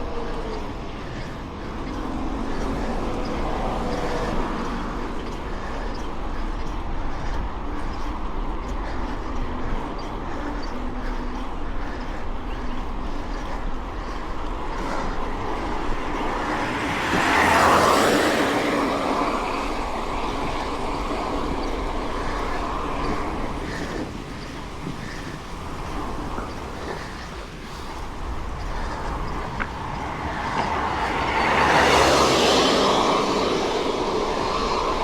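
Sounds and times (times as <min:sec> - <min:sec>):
bike riding rushing noise: 0:00.0 - 0:35.0.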